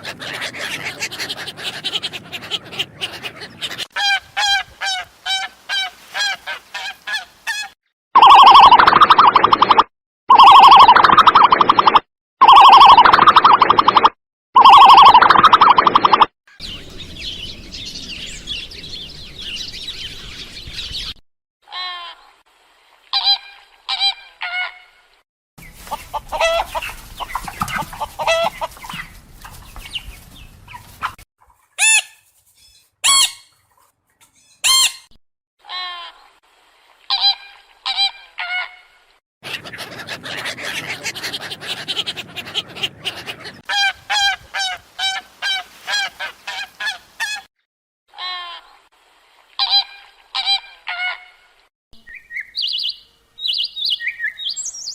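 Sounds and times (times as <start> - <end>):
birds honking and clucking: 0.0 - 7.8, 25.6 - 32.1, 39.4 - 47.5.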